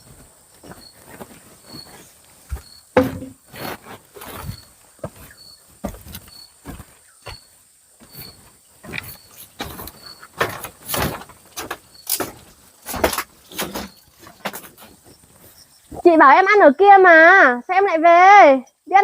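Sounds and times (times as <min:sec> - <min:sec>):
faint high insect chirp: 0:00.0 - 0:19.0
objects knocking and thumping: 0:02.5 - 0:07.4, 0:08.0 - 0:15.0.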